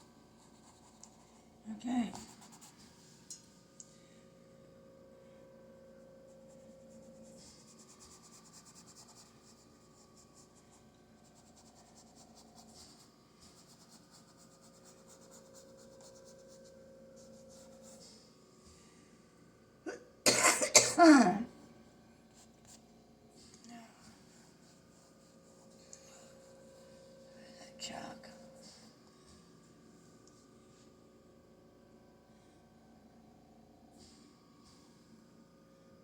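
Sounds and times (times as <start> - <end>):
brush scratching on canvas: 2.1 - 3.0, 6.2 - 18.2, 24.4 - 26.7.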